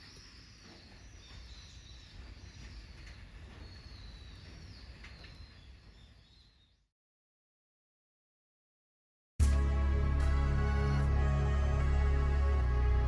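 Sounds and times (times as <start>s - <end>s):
low outdoor rumble: 9.4s - 13.0s.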